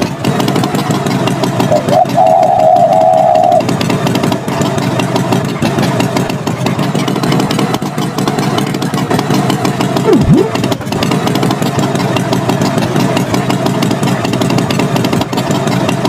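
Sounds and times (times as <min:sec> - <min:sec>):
tractor engine running: 0:00.0 - 0:16.0
held higher tone: 0:01.7 - 0:03.6, 0:10.1 - 0:10.7
swooping tone: 0:10.1 - 0:10.8.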